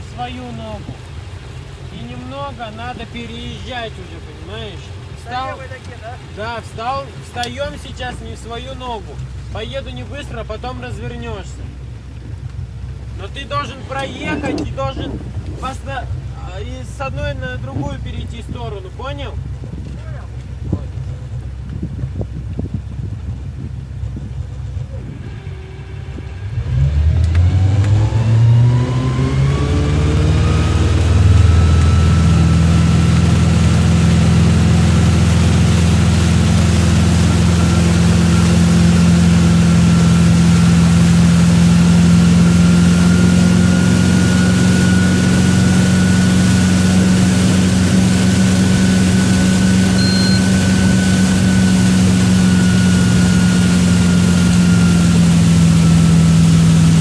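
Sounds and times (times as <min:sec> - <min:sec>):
boat engine accelerating: 0:00.0 - 0:57.0.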